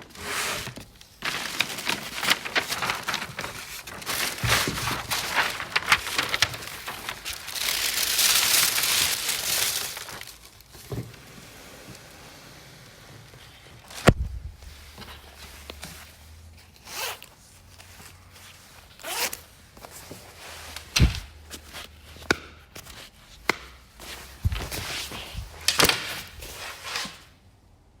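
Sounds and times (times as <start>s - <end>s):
packaging rustling: 0.6s - 10.9s.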